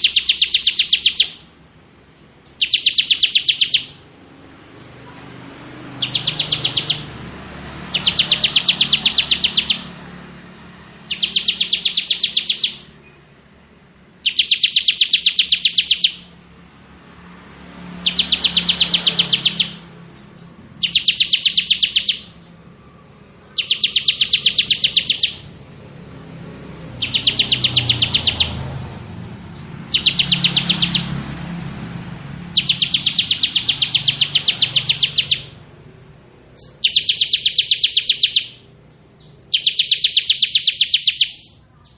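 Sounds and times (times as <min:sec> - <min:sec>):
bird buzzing trill: 0:05.9 - 0:07.2, 0:07.8 - 0:10.2, 0:26.9 - 0:35.6.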